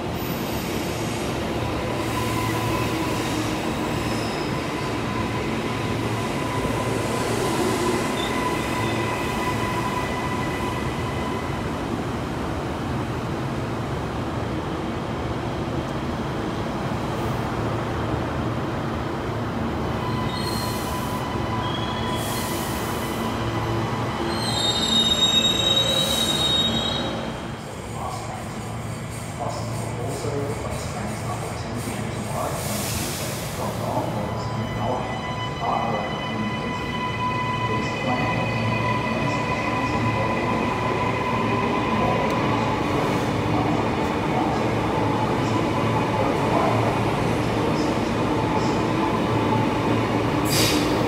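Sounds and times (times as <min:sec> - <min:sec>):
train wheels squealing: 0:01.9 - 0:11.6, 0:19.9 - 0:31.6.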